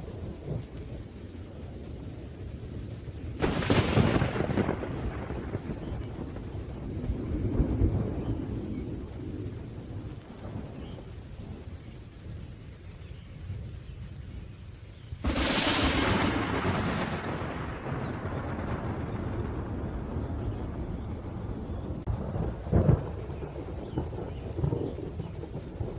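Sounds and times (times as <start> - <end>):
rolling thunder: 0.0 - 12.5, 15.2 - 25.9
steady rain: 0.0 - 25.9
thunder crack: 3.4 - 9.1, 15.2 - 25.9.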